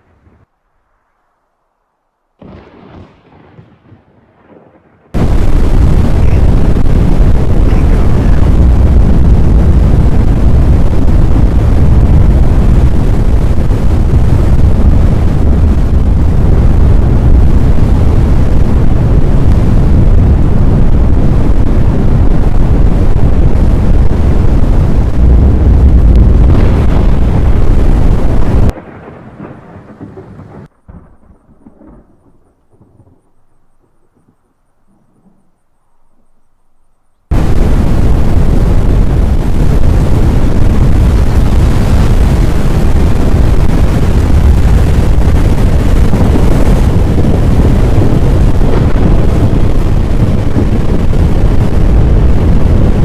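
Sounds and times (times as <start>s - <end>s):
storm wind rushing over microphone: 2.4s - 36.4s, 37.3s - 53.0s.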